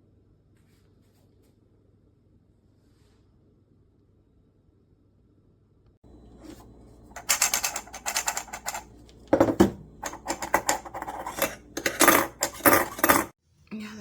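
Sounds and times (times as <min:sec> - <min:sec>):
hard objects clattering: 0:06.4 - 0:13.4.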